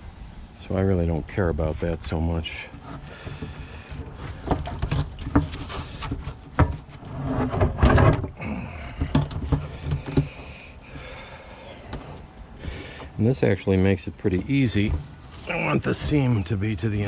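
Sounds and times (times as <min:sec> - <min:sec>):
plastic knocks and clicks: 0:02.8 - 0:10.5.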